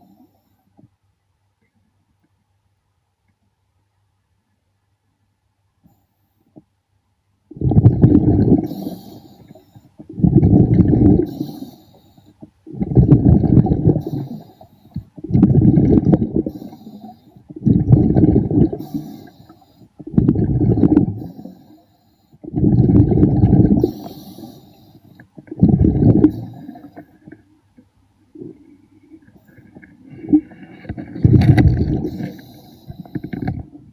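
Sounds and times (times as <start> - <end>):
diver exhaling bubbles underwater: 7.5 - 11.8, 12.6 - 21.7, 22.4 - 27.3, 29.6 - 33.9.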